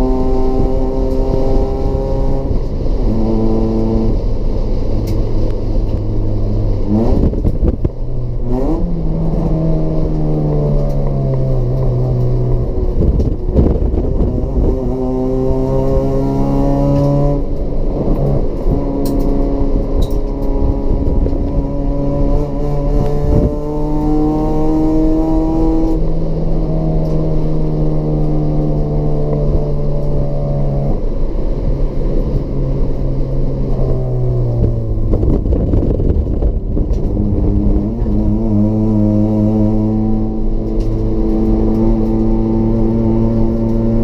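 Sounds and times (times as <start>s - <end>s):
race car engine revving: 0.0s - 44.0s.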